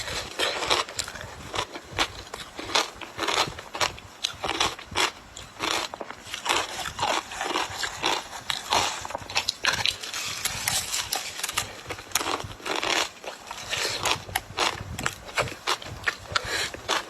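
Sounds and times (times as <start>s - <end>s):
ice being chewed: 0.0s - 17.0s.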